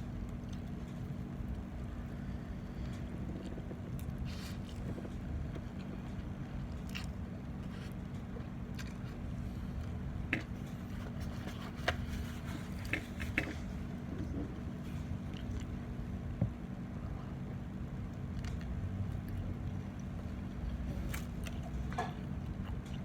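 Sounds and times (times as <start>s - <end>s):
steady low hum: 0.0s - 23.0s
person chewing and crunching: 2.4s - 13.7s, 18.3s - 23.0s.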